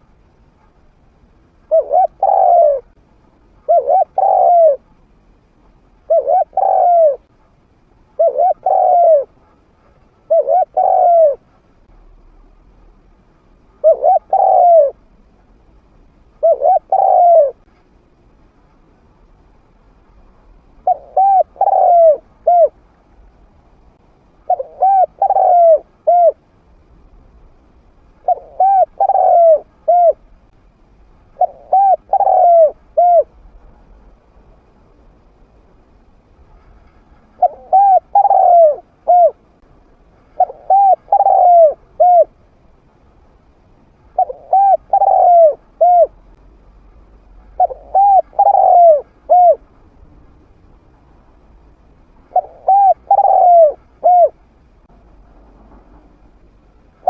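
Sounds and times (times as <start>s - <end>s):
dove cooing: 1.7s - 3.0s, 3.6s - 4.9s, 6.1s - 7.3s, 8.2s - 9.5s, 10.2s - 11.5s, 13.8s - 15.0s, 16.4s - 17.7s, 20.8s - 22.8s, 24.4s - 26.4s, 28.2s - 30.2s, 31.4s - 33.4s, 37.3s - 39.4s, 40.4s - 42.4s, 44.2s - 46.2s, 47.6s - 49.6s, 52.3s - 54.4s.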